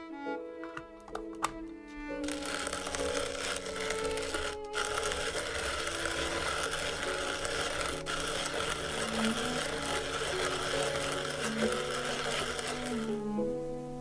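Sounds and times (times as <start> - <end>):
music playing: 0.0 - 14.0
coffee grinder grinding: 2.2 - 13.4.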